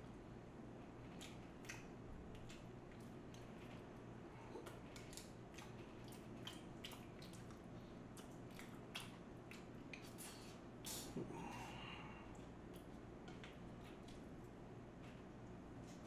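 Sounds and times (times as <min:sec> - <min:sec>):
faint steady hum: 0:00.0 - 0:16.0
person chewing quietly: 0:00.8 - 0:16.0
wet mouth clicks and smacks: 0:01.2 - 0:03.5, 0:04.6 - 0:07.6, 0:08.2 - 0:11.1.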